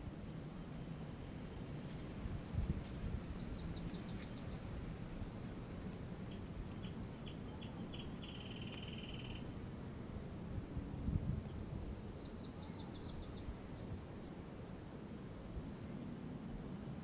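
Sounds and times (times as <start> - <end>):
low outdoor rumble: 0.0 - 17.0
small birds chirping: 0.8 - 9.5, 10.4 - 15.1.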